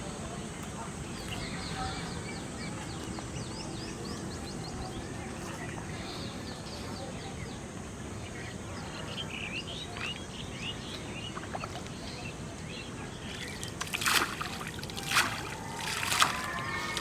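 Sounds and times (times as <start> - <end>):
small birds chirping: 0.0 - 17.0
water splashes: 13.2 - 17.0.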